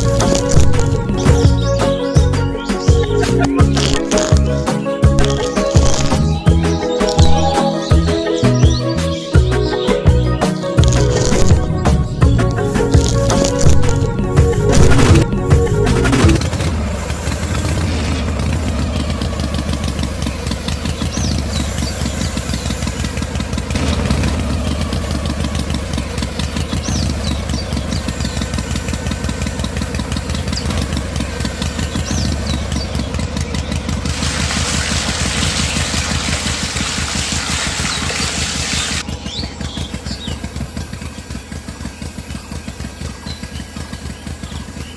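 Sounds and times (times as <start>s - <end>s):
small engine chugging: 0.0s - 44.9s
faint bird chirps: 5.3s - 12.2s, 24.6s - 33.8s.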